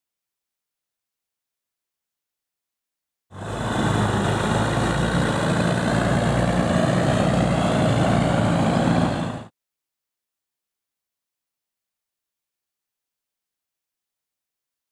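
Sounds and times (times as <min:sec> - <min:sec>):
truck engine idling: 0:03.3 - 0:09.4.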